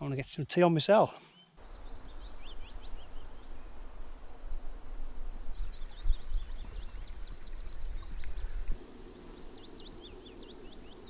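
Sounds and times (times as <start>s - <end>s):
small bird chirping: 1.4s - 3.8s
wind rumbling on microphone: 1.6s - 11.0s.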